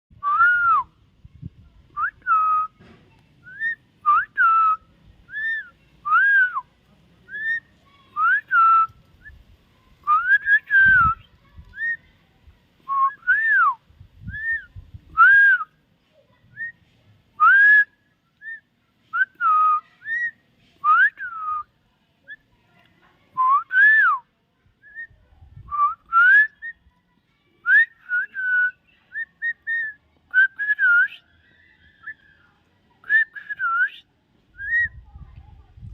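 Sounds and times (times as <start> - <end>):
myna whistling: 3.4 - 6.6, 10.1 - 12.0, 12.9 - 15.7, 17.4 - 21.7, 24.8 - 26.8, 27.7 - 32.3, 33.0 - 34.0, 34.6 - 35.0.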